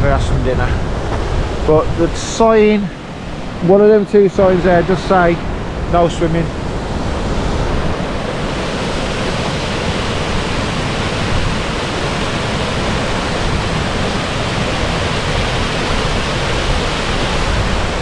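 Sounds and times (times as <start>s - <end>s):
wind buffeting microphone: 0.0s - 18.0s
waterfall rushing: 0.4s - 18.0s.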